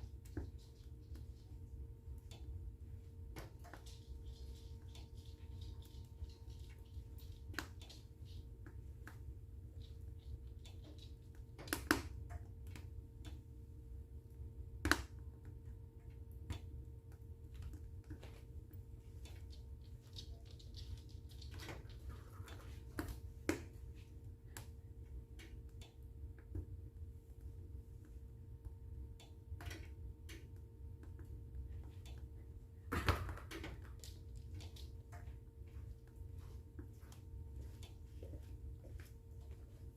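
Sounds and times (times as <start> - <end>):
wood fire crackling: 0.0 - 28.5.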